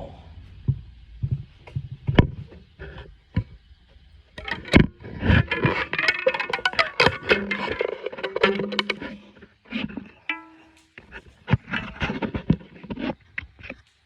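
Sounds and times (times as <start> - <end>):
clatter of clicks and rattles: 4.4 - 14.0.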